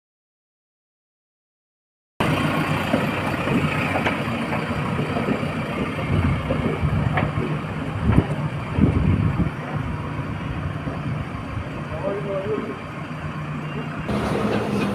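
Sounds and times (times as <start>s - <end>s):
diesel engine running: 2.2s - 8.6s, 14.1s - 14.9s.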